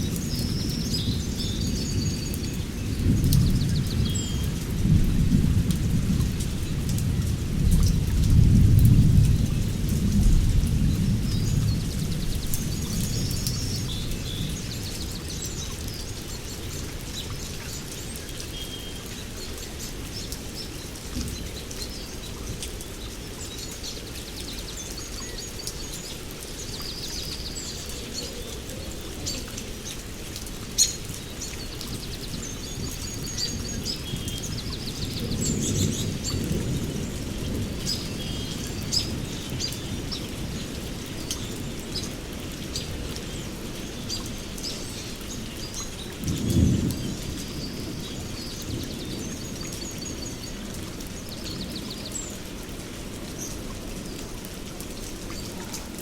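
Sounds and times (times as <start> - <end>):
rain falling steadily: 0.0 - 56.0
birds chirping: 10.8 - 52.5.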